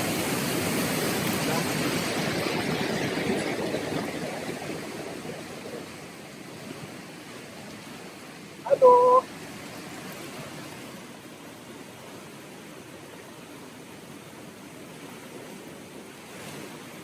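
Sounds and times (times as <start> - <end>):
waterfall rushing: 8.5 - 9.3
short steady tone: 8.7 - 9.2.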